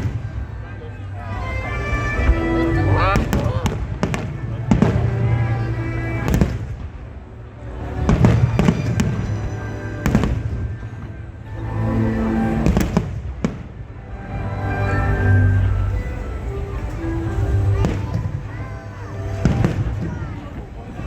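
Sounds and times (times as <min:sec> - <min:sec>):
music with long held notes: 0:00.0 - 0:21.0
fireworks bangs: 0:03.2 - 0:05.4, 0:06.2 - 0:07.1, 0:08.0 - 0:11.1, 0:12.6 - 0:13.8, 0:19.3 - 0:21.0.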